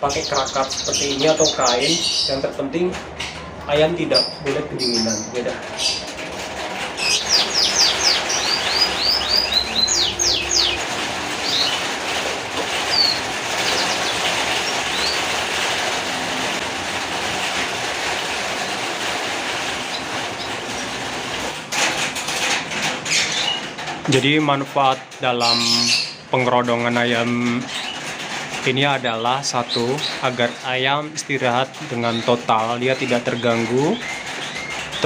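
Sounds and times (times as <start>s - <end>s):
steady rushing noise: 4.8s - 22.9s.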